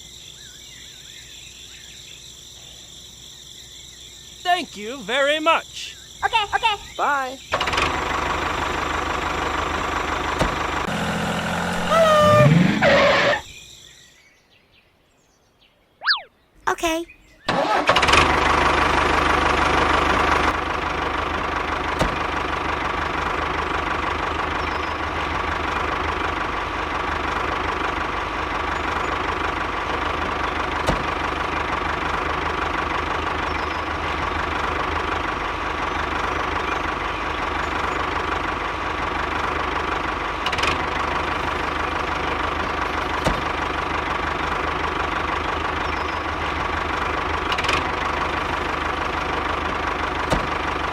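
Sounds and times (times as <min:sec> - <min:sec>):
model tractor motor humming: 0:07.6 - 0:13.4, 0:17.5 - 0:50.9.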